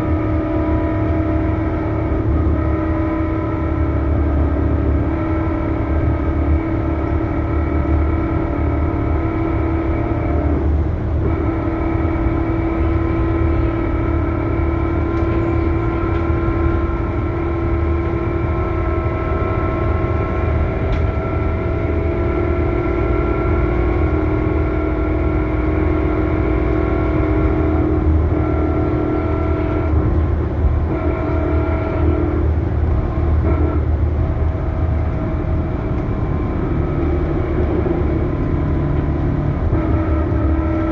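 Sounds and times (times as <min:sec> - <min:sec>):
diesel engine rumble: 0:00.0 - 0:40.9.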